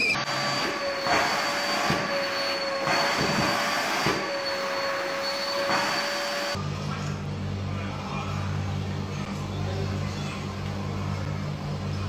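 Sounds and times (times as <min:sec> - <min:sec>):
vacuum cleaner running: 0:00.0 - 0:06.7.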